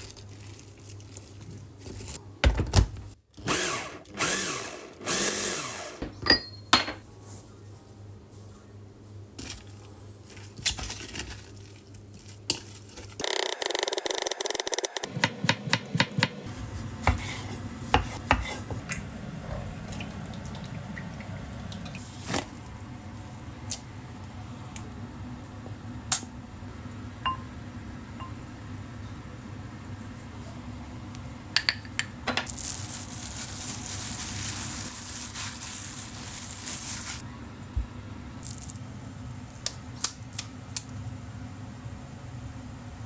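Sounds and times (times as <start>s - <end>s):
dishes and utensils clinking: 6.1s - 7.1s.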